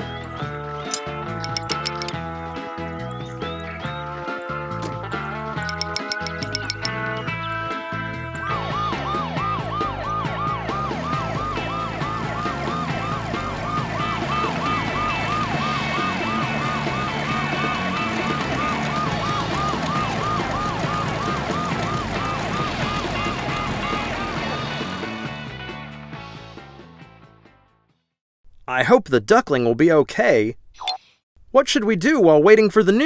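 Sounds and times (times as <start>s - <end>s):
ambulance siren yelping: 8.7s - 25.3s
background music: 10.5s - 27.0s.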